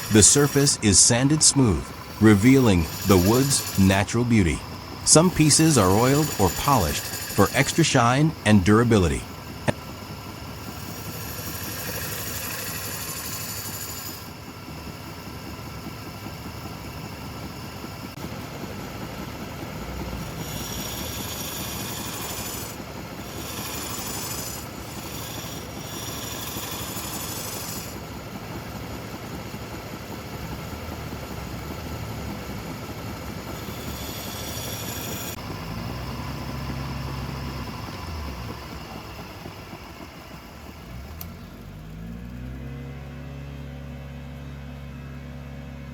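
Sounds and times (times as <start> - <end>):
wood lathe motor running: 0.0 - 0.7, 1.8 - 2.2, 2.8 - 3.8, 4.6 - 7.8, 9.3 - 14.4, 19.9 - 28.1, 30.4 - 42.1
high hissing of wood being turned: 2.0 - 3.8, 5.1 - 7.8, 10.6 - 14.2, 20.4 - 28.0, 33.6 - 38.2.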